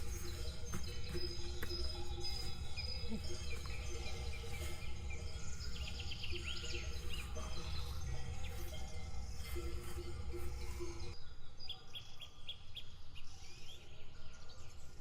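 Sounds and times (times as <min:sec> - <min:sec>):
birds chirping and calling: 0:00.0 - 0:11.2.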